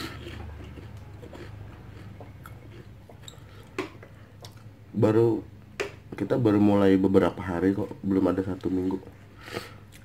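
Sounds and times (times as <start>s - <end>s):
person chewing: 0.0s - 4.8s, 9.4s - 10.0s.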